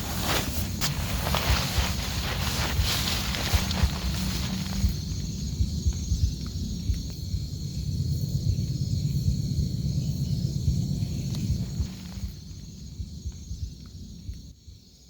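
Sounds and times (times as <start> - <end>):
rain drumming on a tent: 0.0 - 5.3
steady high hiss: 0.0 - 9.6.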